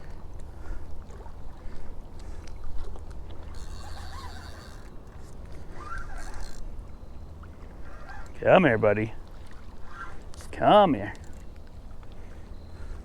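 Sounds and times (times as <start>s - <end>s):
faint wavering calls: 3.6s - 8.4s.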